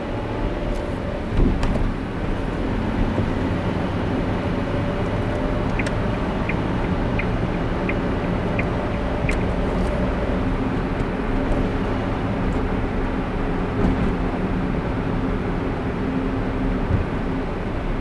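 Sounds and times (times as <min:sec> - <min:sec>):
car road and engine rumble: 0:00.0 - 0:18.0
car bump: 0:01.3 - 0:02.1
light regular ticking: 0:05.0 - 0:11.2.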